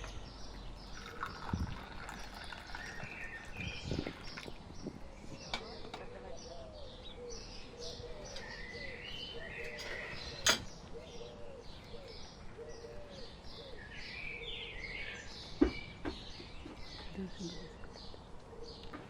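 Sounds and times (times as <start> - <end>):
small birds chirping: 0.0 - 19.0
low bird call: 0.9 - 15.7.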